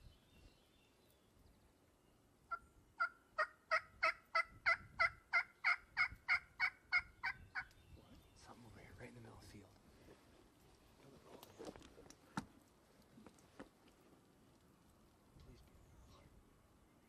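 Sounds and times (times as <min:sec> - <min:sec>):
wild turkey yelping: 0:02.5 - 0:07.8.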